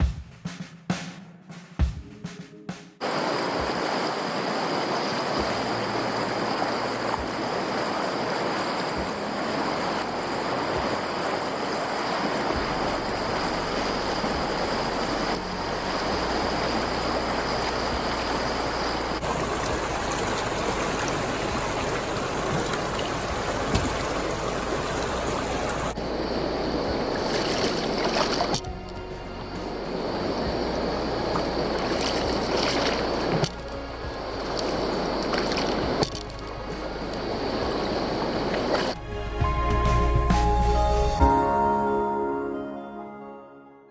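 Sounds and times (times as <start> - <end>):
rushing river water: 3.0 - 41.0.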